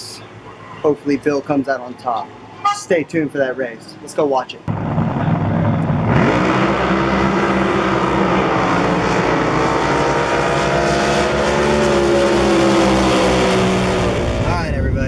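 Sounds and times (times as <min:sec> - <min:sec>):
racing boat engine at full power: 0:04.6 - 0:15.0.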